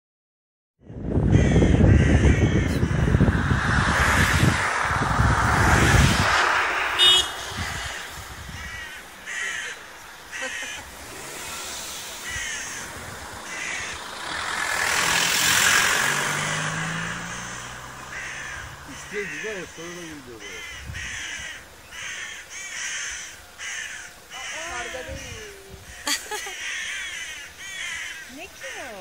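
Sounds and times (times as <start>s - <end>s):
wind rumble on microphone: 0.8s - 9.3s, 11.6s - 15.2s, 20.6s - 21.7s, 24.7s - 26.1s
bird giving harsh calls: 5.8s - 29.0s.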